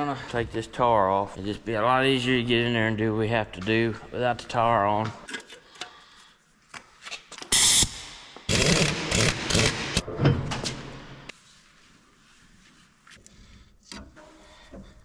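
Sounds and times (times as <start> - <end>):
pneumatic impact wrench hammering: 7.5 - 10.1.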